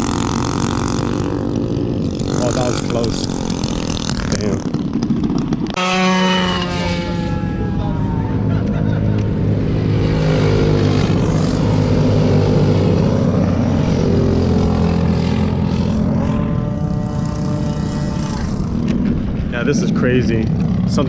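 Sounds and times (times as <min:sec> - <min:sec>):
mini bike engines buzzing: 0:00.0 - 0:21.0.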